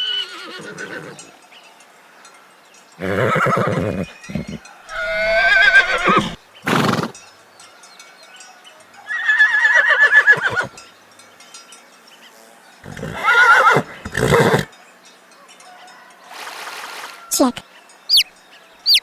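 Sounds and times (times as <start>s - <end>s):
horse neighing: 0.0s - 1.3s, 3.0s - 7.2s, 9.1s - 10.8s, 12.8s - 14.7s.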